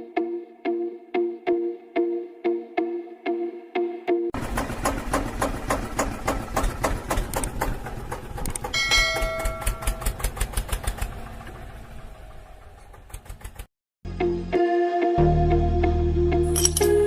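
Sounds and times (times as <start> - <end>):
small diesel engine chugging: 4.4 - 13.7
brief metallic ring: 16.5 - 17.0.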